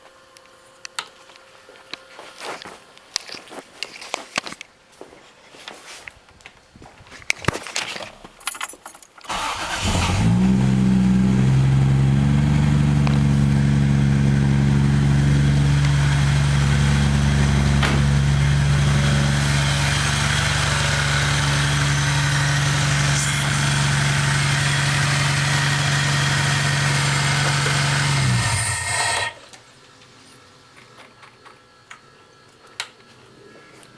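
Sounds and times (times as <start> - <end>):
car engine starting and idling: 9.3 - 29.5.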